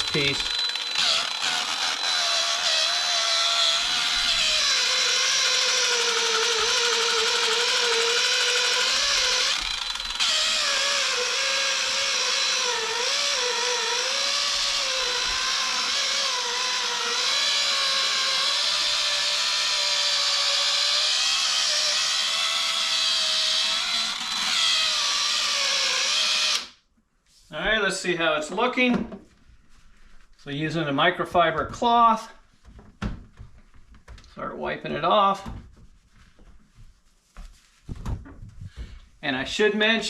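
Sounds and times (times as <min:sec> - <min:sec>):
polisher motor whine: 0:00.0 - 0:26.7.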